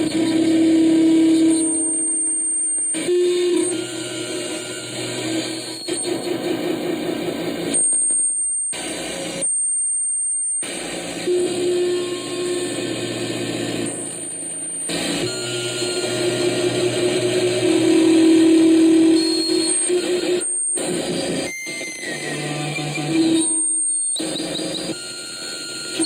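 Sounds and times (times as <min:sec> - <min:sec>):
electronic drone: 0:00.0 - 0:26.0
thin high whine: 0:00.0 - 0:26.0
noisy wavering texture: 0:11.3 - 0:26.0.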